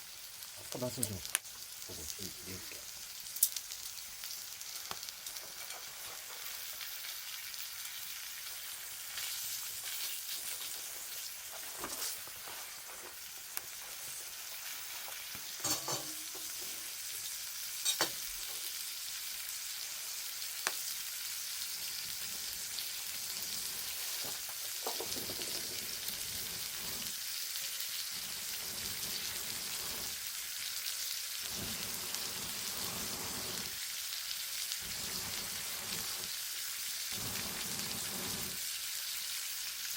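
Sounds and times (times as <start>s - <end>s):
fire popping: 23.3s - 27.2s, 28.2s - 30.2s, 31.5s - 33.7s, 34.8s - 36.3s, 37.1s - 38.6s.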